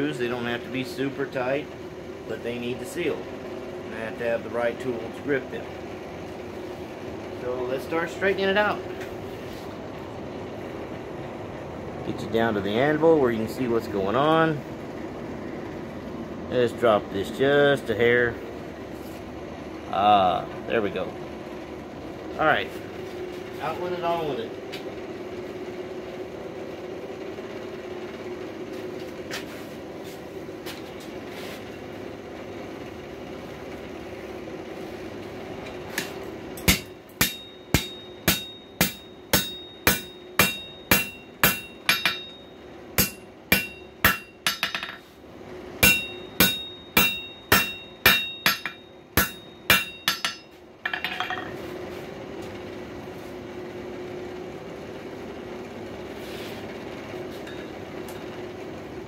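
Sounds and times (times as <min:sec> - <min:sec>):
hammer striking steel on anvil: 0:36.6 - 0:45.1, 0:45.8 - 0:51.6.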